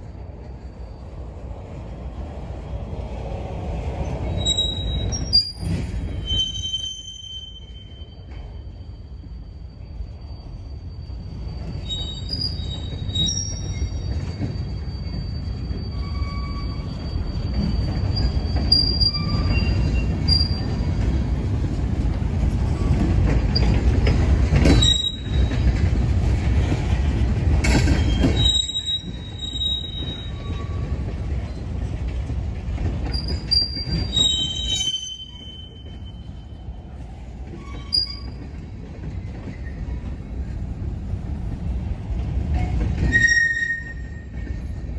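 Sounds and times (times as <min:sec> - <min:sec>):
freight train wheels rumbling: 0:00.0 - 0:44.9
wheel squeals: 0:04.3 - 0:21.0, 0:22.6 - 0:26.0, 0:27.6 - 0:31.6, 0:33.0 - 0:36.6, 0:37.4 - 0:40.2, 0:42.5 - 0:44.9.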